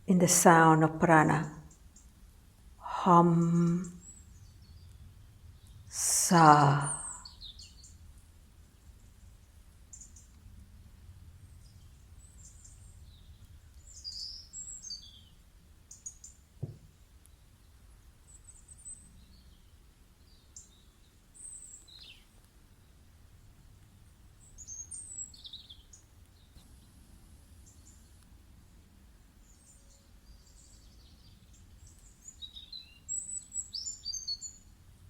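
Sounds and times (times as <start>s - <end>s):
wild birds chirping: 3.0s - 8.0s, 11.4s - 23.0s, 24.1s - 28.2s, 29.4s - 34.7s
low thud: 16.6s - 16.9s.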